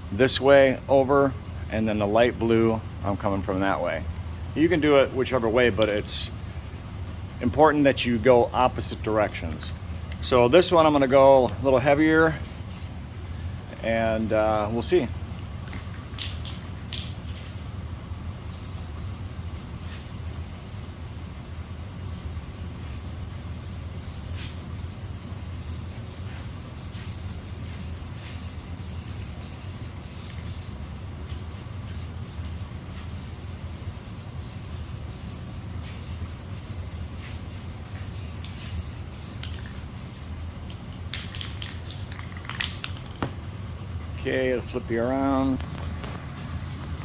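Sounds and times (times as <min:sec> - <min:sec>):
aerosol spray can hissing: 0:12.3 - 0:13.0, 0:18.4 - 0:30.8, 0:31.9 - 0:32.5, 0:33.1 - 0:40.3.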